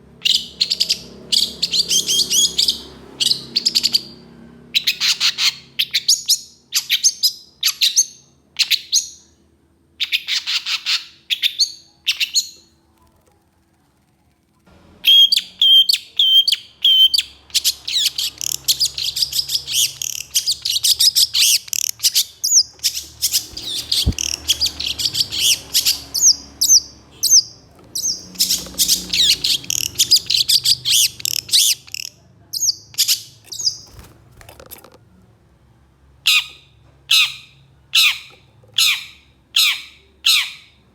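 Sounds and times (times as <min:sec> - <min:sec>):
shrike harsh chattering calls: 0:17.6 - 0:32.2.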